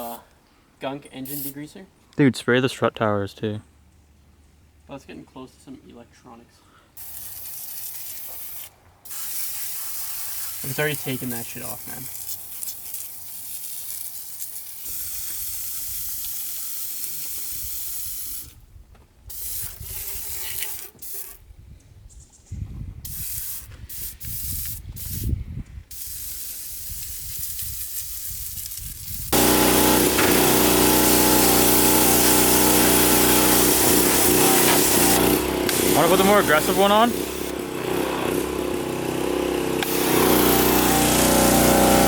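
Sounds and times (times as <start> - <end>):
aerosol can spray hissing: 1.3 - 1.6, 7.0 - 18.6, 19.3 - 21.4, 23.1 - 25.3, 25.9 - 37.6, 39.8 - 42.0
loud machine noise with low hum: 29.4 - 36.2, 37.1 - 42.0.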